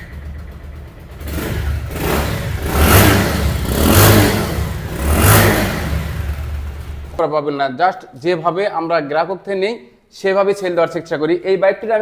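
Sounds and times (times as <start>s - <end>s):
motorcycle engine idling and revving: 0.0s - 7.2s.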